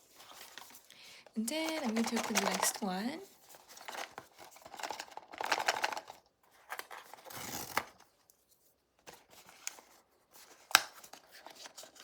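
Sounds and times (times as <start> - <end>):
packaging crinkling and tearing: 0.0 - 8.1.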